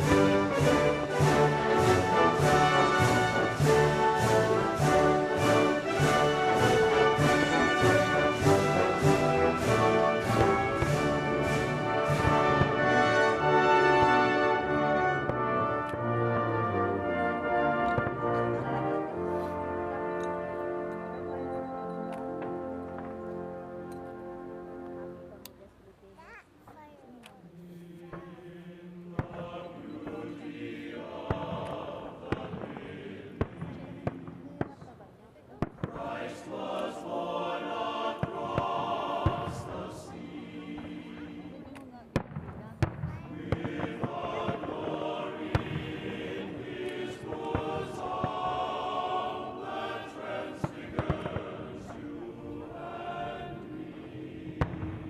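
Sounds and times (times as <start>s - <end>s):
firework bangs: 0.0s - 18.4s, 28.1s - 30.4s, 31.0s - 37.1s, 38.1s - 40.1s, 41.9s - 48.8s, 49.6s - 52.2s, 54.5s - 55.0s
music with chant-like notes: 0.0s - 21.5s, 27.4s - 34.6s, 35.6s - 42.2s, 43.1s - 55.0s.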